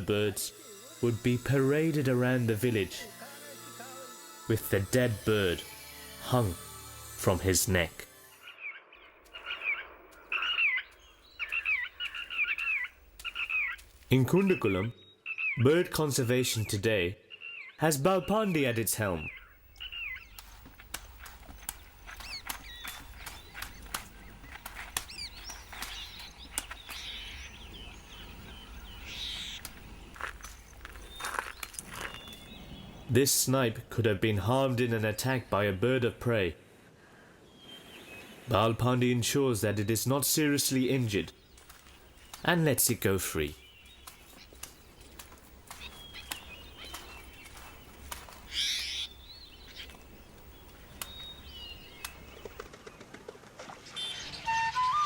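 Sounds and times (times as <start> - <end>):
harsh rasping bird call: 8.4 - 13.9, 48.4 - 50.0
birds chirping and whistling: 8.4 - 33.1, 37.5 - 52.7, 54.0 - 55.0
sharp clicks: 9.2 - 14.0, 19.7 - 27.2, 29.6 - 30.8, 41.6 - 43.0, 44.0 - 48.4, 49.8 - 52.7.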